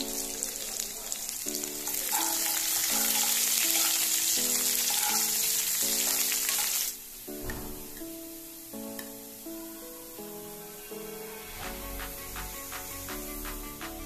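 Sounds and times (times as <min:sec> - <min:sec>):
onions sizzling in hot oil: 0:00.0 - 0:07.5, 0:08.2 - 0:13.8
background music: 0:00.0 - 0:14.0
spoon stirring: 0:02.0 - 0:06.9.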